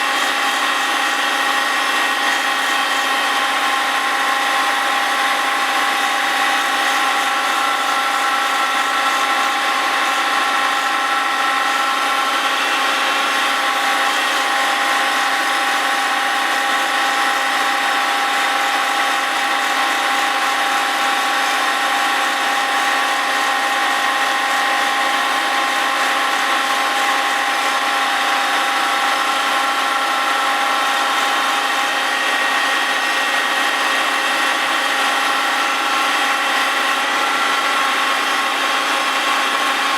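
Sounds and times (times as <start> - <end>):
milling machine whine: 0.0 - 39.9.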